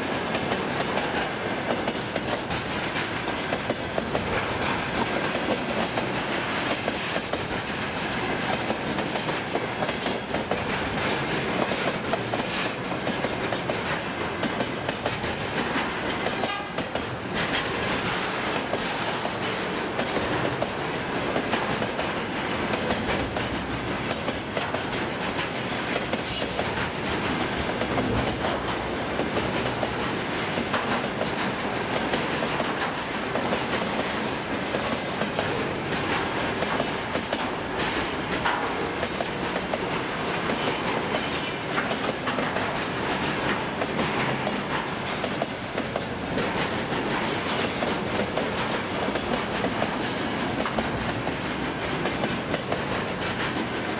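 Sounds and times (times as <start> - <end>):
train wheels rumbling on rails: 0.0 - 53.9
clicks over rail joints: 21.3 - 53.9.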